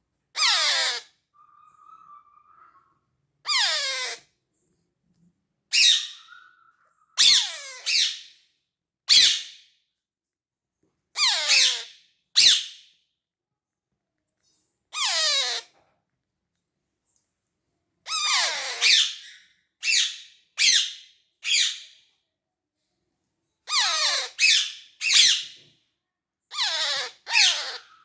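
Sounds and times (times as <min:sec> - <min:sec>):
parrot chick squawking calls: 0:00.4 - 0:04.2, 0:05.7 - 0:08.3, 0:11.2 - 0:12.7, 0:15.0 - 0:15.7, 0:18.1 - 0:21.8, 0:23.7 - 0:25.5, 0:26.5 - 0:28.0.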